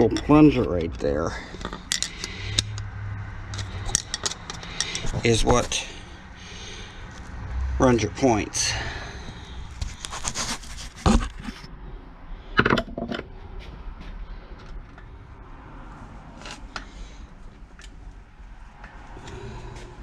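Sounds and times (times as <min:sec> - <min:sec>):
metal engine parts clinking: 0:00.0 - 0:05.8.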